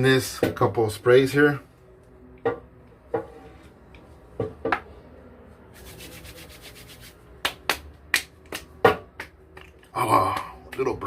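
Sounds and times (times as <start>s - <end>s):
hands rubbing together: 5.7s - 8.7s
hands slapping face: 7.4s - 11.0s.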